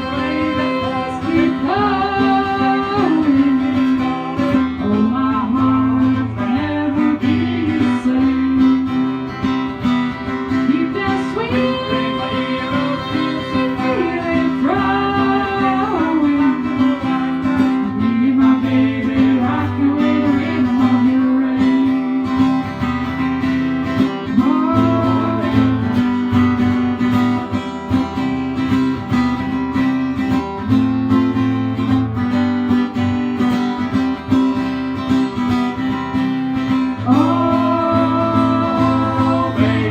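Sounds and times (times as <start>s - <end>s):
person singing: 0.0s - 9.4s, 10.5s - 22.7s, 24.2s - 26.3s, 36.9s - 39.9s
strummed acoustic guitar: 0.0s - 39.9s.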